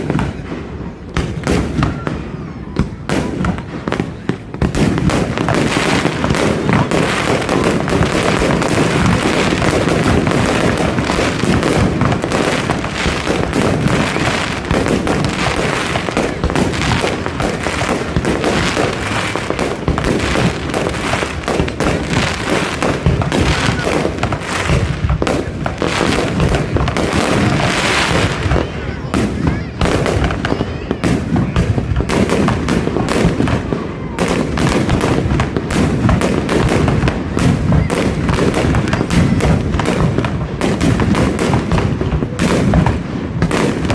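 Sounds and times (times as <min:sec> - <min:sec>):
fireworks bangs and crackling: 0:00.0 - 0:43.9.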